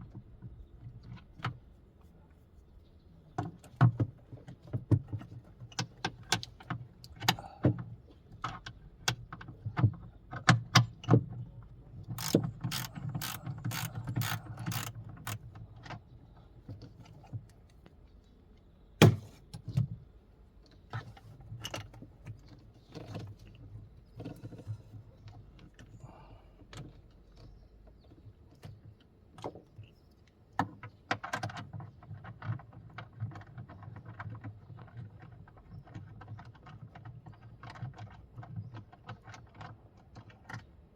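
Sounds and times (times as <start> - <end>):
hand tools clicking on metal: 12.1 - 15.5.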